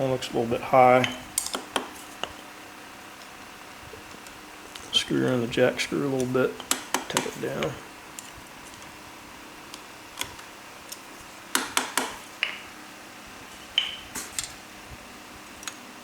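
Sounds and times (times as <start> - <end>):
high-pitched ringing taps: 13.8 - 14.1.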